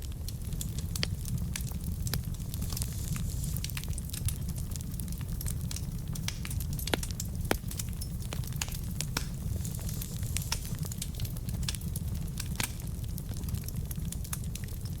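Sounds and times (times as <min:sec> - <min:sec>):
logs crackling and popping: 0:00.0 - 0:15.0
low rumble of fire: 0:00.0 - 0:15.0.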